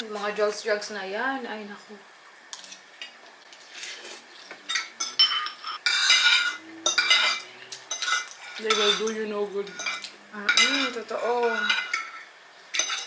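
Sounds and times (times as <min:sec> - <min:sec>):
spoon clinking against bowl: 0:04.7 - 0:13.0.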